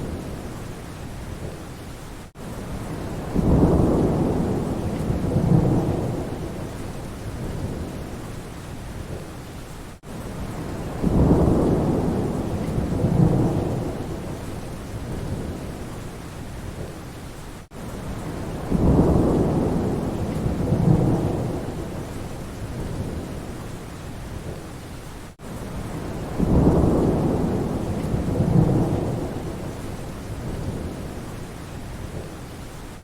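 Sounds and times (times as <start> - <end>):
rain in forest: 0.0 - 33.0
rolling thunder: 2.7 - 8.2, 10.4 - 15.8, 18.1 - 23.5, 25.8 - 31.2.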